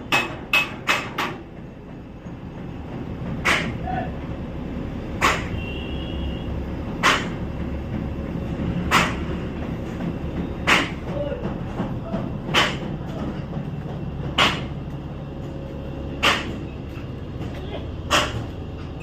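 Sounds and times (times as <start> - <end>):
steady low hum: 6.3 - 19.0.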